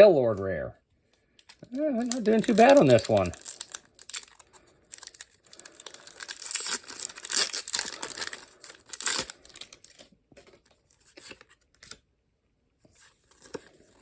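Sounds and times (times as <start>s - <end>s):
foil wrapper crinkling and tearing: 1.4s - 12.0s.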